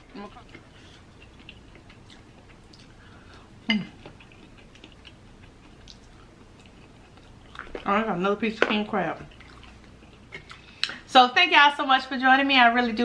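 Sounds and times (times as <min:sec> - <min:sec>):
chewing mouth clicks: 0:03.9 - 0:07.8.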